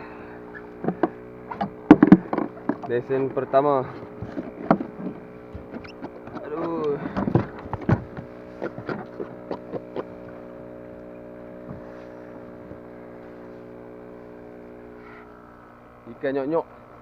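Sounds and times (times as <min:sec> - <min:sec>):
steady low hum: 0:00.0 - 0:17.0
sharp knocks and clicks: 0:00.8 - 0:03.4, 0:04.2 - 0:10.1.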